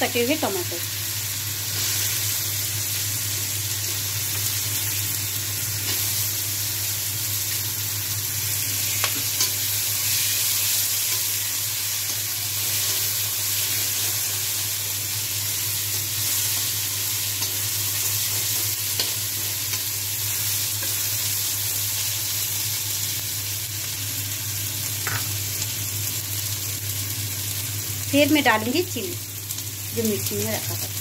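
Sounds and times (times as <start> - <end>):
food sizzling in hot oil: 0.0 - 31.0.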